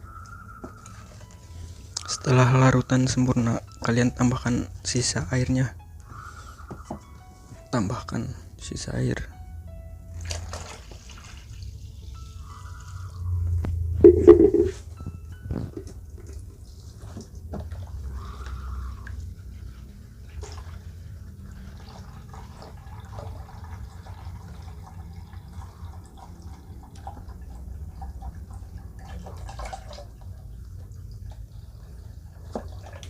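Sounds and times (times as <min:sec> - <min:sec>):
liquid dripping and splashing: 0:10.2 - 0:12.2, 0:20.1 - 0:33.0.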